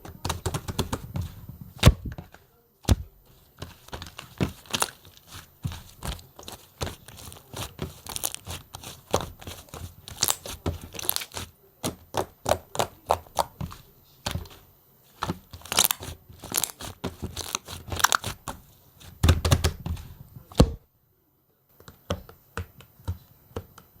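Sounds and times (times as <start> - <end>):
slime squished by hand: 3.7 - 14.6, 15.5 - 19.7.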